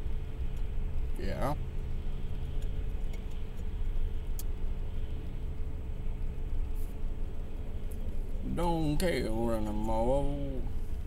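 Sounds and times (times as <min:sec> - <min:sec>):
car engine idling: 0:00.0 - 0:11.0
faint irregular clicks: 0:00.5 - 0:00.8, 0:02.4 - 0:05.4.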